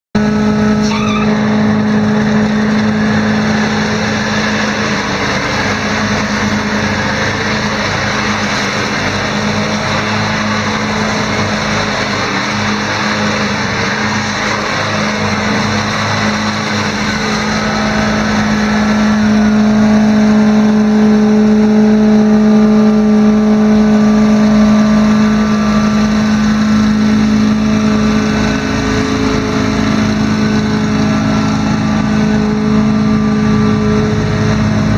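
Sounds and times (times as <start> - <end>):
mechanical rush: 0.2 - 34.9
mower engine running: 0.2 - 34.9.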